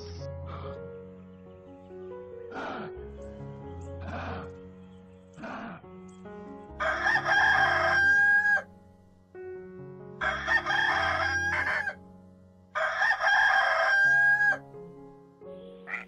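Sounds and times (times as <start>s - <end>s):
rooster crowing: 6.8s - 8.7s, 10.2s - 12.0s, 12.8s - 14.6s.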